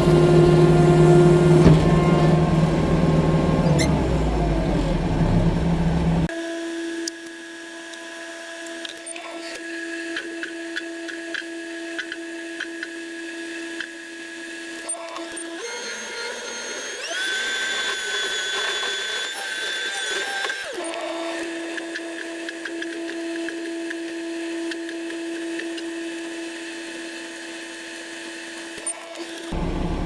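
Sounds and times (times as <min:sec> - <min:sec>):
skid steer loader engine whine: 0:00.0 - 0:06.3, 0:29.5 - 0:30.0.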